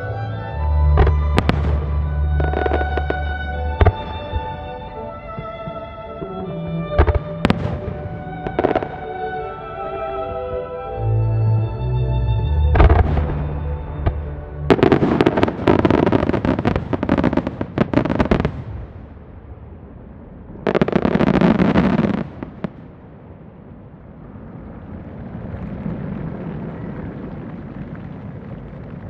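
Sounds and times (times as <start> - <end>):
low rolling rumble: 0.0 - 5.8, 11.8 - 29.0
fireworks bursting: 0.0 - 6.2, 6.8 - 9.6, 12.6 - 19.4, 20.5 - 29.0.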